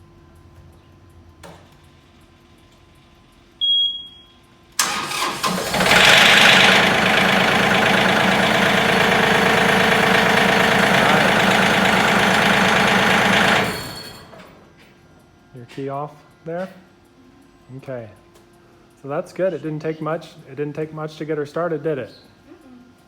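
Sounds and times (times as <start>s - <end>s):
short beep: 3.6s - 4.4s
tractor engine cranking and running: 4.8s - 14.6s.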